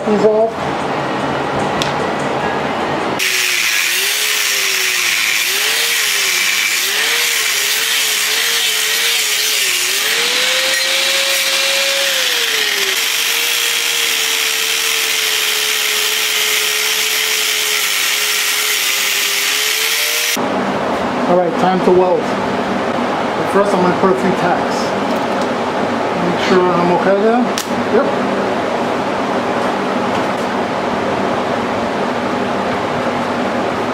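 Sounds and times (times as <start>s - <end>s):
power tool cutting steel: 3.2s - 20.4s.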